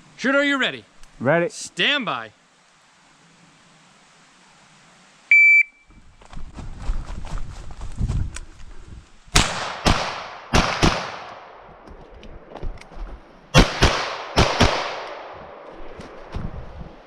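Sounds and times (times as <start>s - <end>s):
gunshots with ringing tail: 9.4s - 11.6s, 13.6s - 15.9s.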